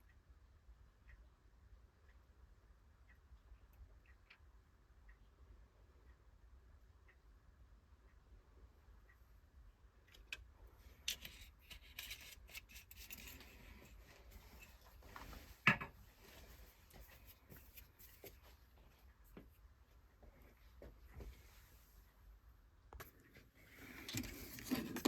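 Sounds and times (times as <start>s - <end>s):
small handling clicks and rubbing: 10.0s - 15.5s, 16.3s - 18.4s, 23.9s - 25.0s.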